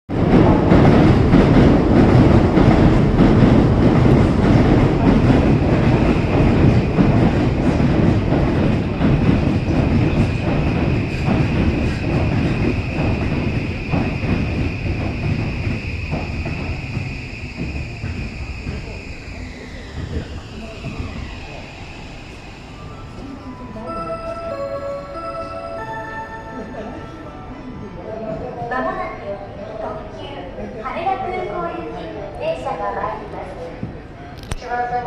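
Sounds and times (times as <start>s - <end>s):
train wheels clattering on rails: 0.1s - 21.4s
steady high whine: 5.9s - 27.7s.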